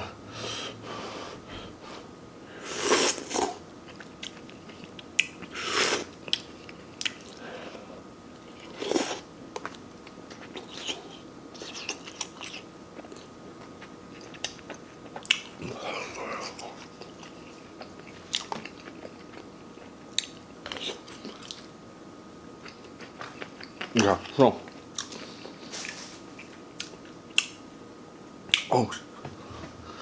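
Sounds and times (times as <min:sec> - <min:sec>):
person chewing food: 0:02.9 - 0:07.4, 0:08.4 - 0:21.7, 0:22.6 - 0:27.6.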